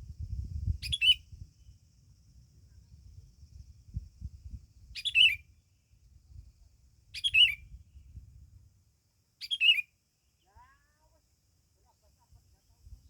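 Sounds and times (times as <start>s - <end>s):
songbird chirping: 0.8s - 1.9s, 4.9s - 6.0s, 7.1s - 8.2s, 9.4s - 11.1s.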